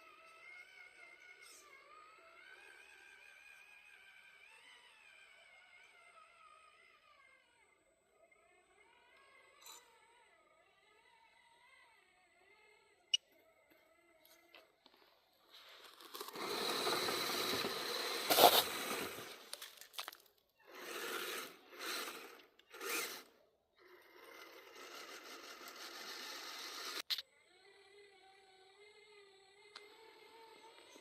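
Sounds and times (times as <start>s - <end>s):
crunching and scraping: 14.9s - 23.1s
click: 29.7s - 29.9s.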